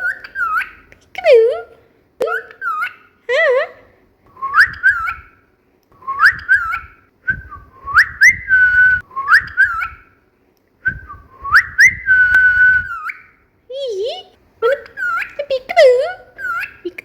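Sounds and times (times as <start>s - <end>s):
cockatiel whistling a tune: 4.4s - 5.4s, 6.0s - 10.1s, 10.8s - 13.4s.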